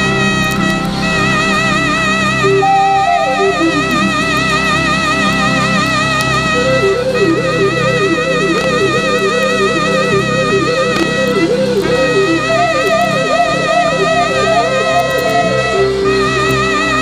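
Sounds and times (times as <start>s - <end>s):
quick keyboard line: 0.0s - 17.0s
sustained low chords: 0.0s - 17.0s.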